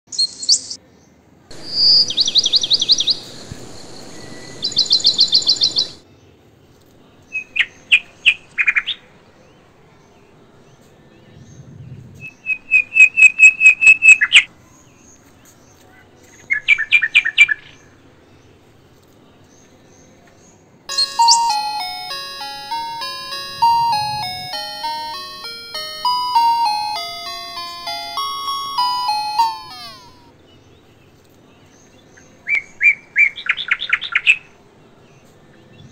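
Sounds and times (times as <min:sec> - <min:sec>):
songbird chirping and trilling: 0:00.1 - 0:06.4, 0:07.2 - 0:18.7, 0:19.4 - 0:35.9
tinkling instrumental music: 0:20.9 - 0:30.3.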